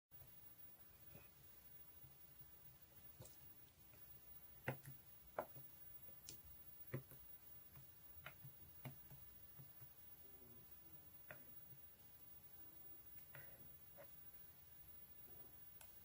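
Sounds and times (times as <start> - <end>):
faint clicks and light knocks: 2.8 - 10.2, 13.0 - 16.0.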